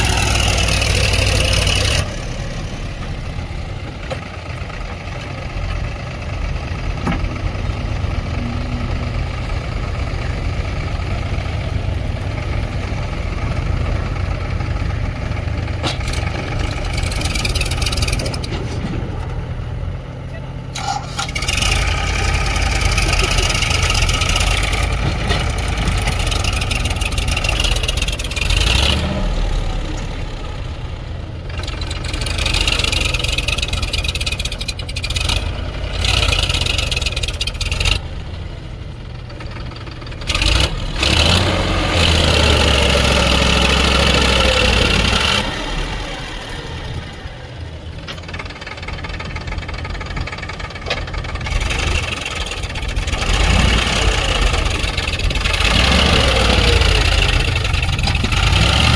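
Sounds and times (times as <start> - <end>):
heavy diesel machinery engines: 0.0 - 58.9.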